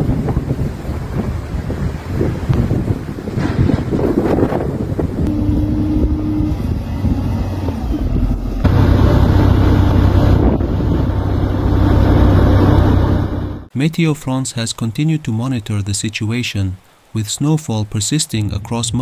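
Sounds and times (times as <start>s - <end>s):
wind buffeting microphone: 0.0s - 13.7s
vehicle engine running: 5.3s - 13.7s.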